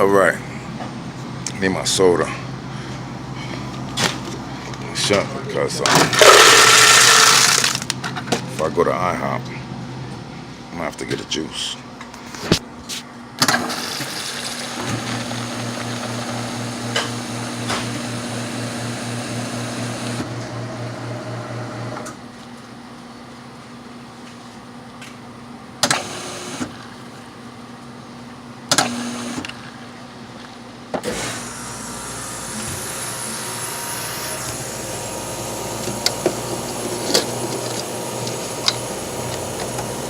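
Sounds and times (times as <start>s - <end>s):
pulsing motor hum: 31.2s - 40.0s.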